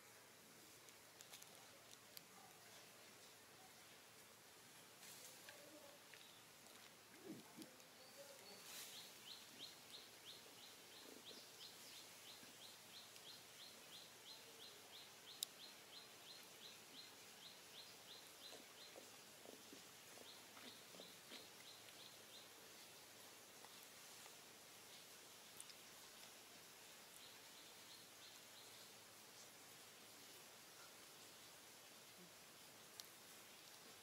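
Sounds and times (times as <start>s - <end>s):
small bird chirping: 7.1s - 22.9s.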